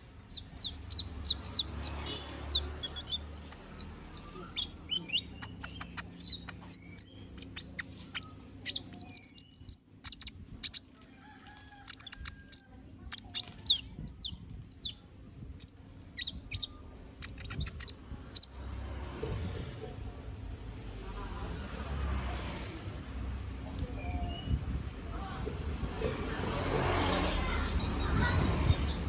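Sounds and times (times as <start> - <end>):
sunbird singing: 0.0 - 10.8, 11.9 - 18.5.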